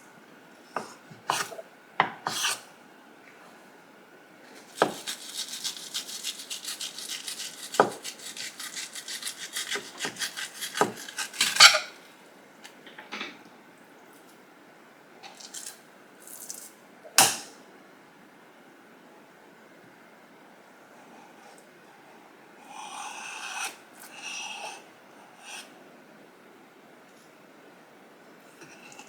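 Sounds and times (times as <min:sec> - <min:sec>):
rasping scraping strokes: 0:04.7 - 0:11.8.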